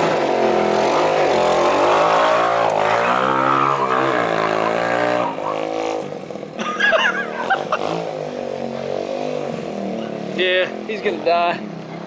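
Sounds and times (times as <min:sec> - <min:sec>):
small motorbike engine revving: 0:00.0 - 0:06.1.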